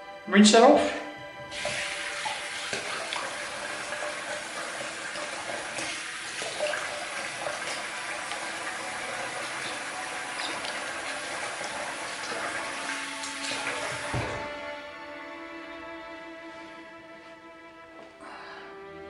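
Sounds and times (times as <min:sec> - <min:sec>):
tap running into sink: 0:01.2 - 0:14.6
water splashing on face: 0:01.5 - 0:14.5.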